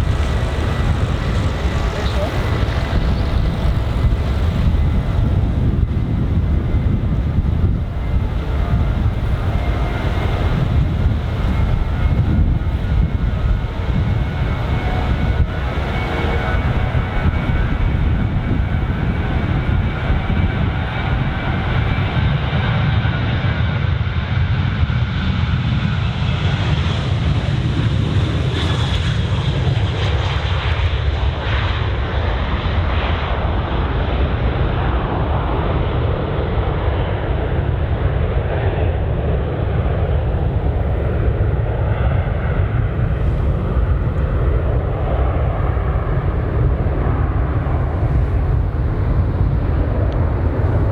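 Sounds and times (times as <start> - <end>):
jet engine fan tones: 0.0 - 23.4, 39.5 - 50.9
jet engine roar: 0.0 - 50.9.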